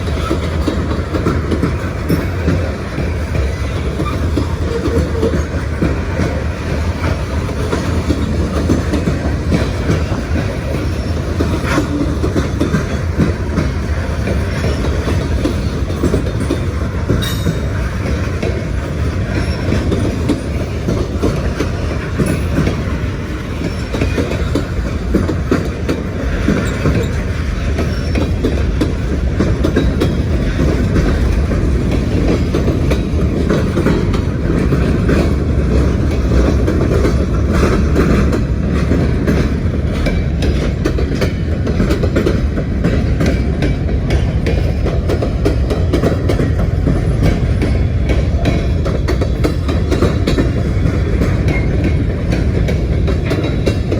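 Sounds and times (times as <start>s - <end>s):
train rumble: 0.0s - 53.9s
wheels clicking over rail joints: 0.0s - 53.9s
wheel squeals: 26.2s - 28.5s.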